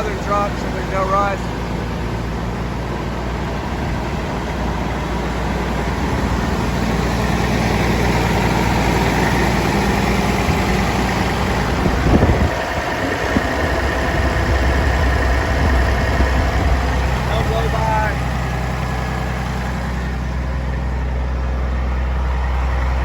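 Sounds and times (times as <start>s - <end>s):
diesel truck engine idling: 0.0s - 23.0s.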